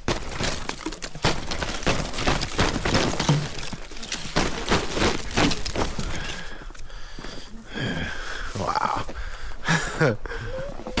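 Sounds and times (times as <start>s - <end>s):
ice cracking and snapping: 0.0s - 6.8s.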